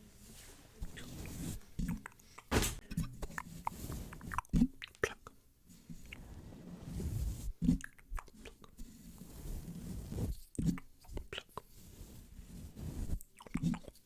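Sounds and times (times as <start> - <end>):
microphone being brushed and scratched: 0.0 - 1.8, 3.5 - 4.3, 5.7 - 7.8, 8.8 - 10.8, 11.6 - 13.2.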